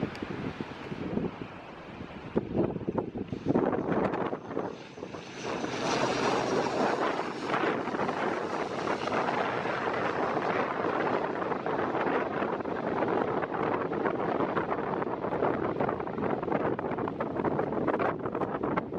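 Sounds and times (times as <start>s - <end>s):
turboprop aircraft engines running: 0.0s - 18.9s
wind gusting on microphone: 0.0s - 18.9s.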